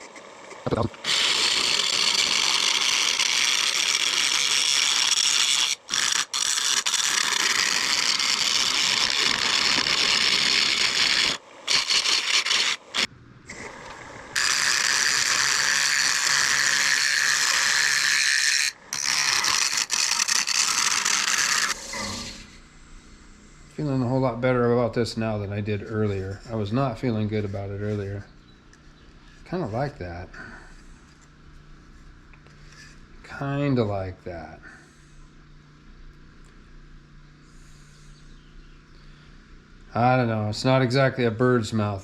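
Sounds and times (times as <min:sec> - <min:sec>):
lathe tool cutting wood: 0:14.4 - 0:22.5.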